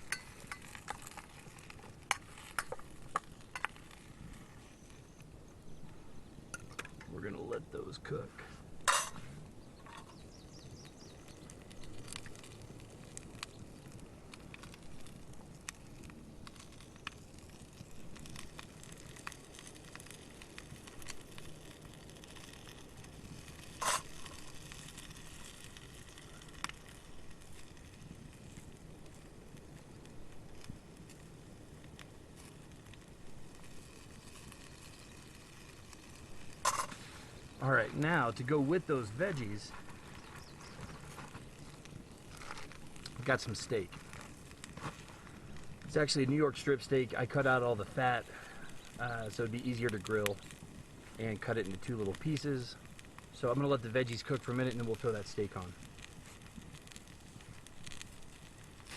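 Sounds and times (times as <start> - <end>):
vegetables frying in oil: 0.0 - 5.8, 8.8 - 58.9
vegetables sizzling in oil: 0.0 - 5.8, 22.9 - 26.4
campfire crackling and popping: 0.0 - 58.9.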